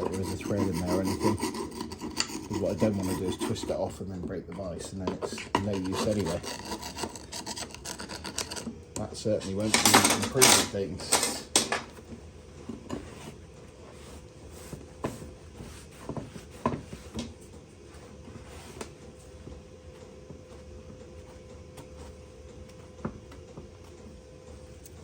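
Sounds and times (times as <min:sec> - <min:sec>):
metal tools clicking on workbench: 0:09.6 - 0:11.9.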